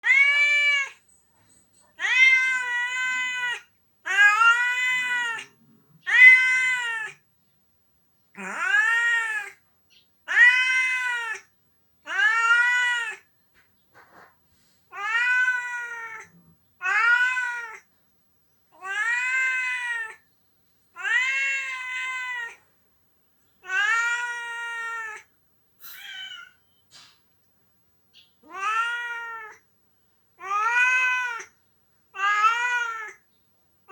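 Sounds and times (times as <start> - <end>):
cat meowing: 0.0 - 1.0, 2.0 - 7.2, 8.4 - 9.6, 10.3 - 11.5, 12.1 - 13.2, 14.9 - 17.9, 18.7 - 20.2, 21.0 - 22.6, 23.6 - 26.7, 28.4 - 29.6, 30.4 - 33.2.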